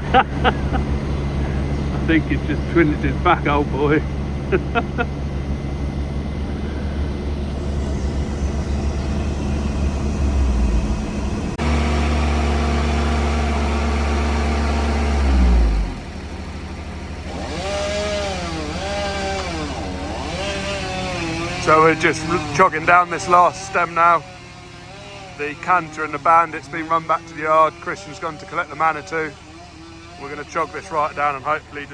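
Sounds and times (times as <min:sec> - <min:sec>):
heavy machinery engine: 0:00.0 - 0:31.9
faint wavering whine: 0:00.1 - 0:11.6.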